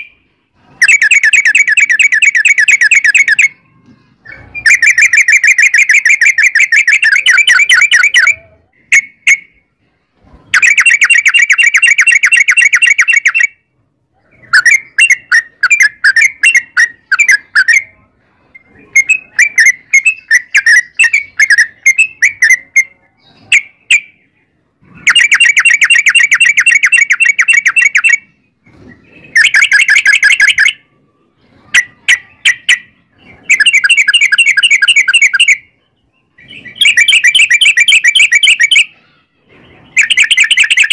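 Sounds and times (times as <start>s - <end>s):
bird chattering: 0.8s - 9.6s, 10.5s - 13.6s, 14.3s - 18.0s, 18.6s - 24.3s, 25.0s - 30.8s, 31.7s - 39.2s, 39.8s - 40.9s.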